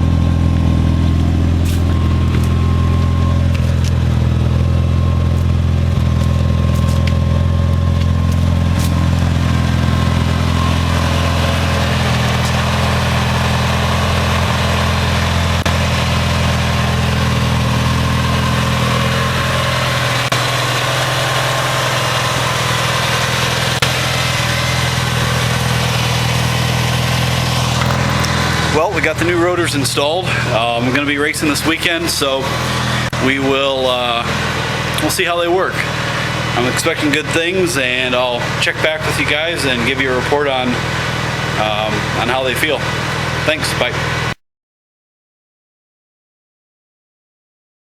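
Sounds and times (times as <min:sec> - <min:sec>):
engine idling: 0:00.0 - 0:44.4.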